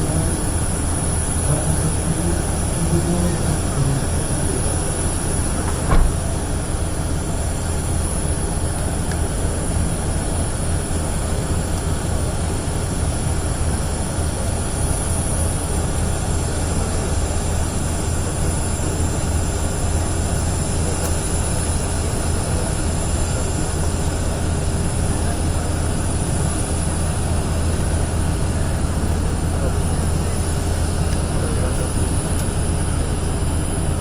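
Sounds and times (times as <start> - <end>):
rumbling background noise: 0.0 - 34.0
short knock: 5.7 - 6.2.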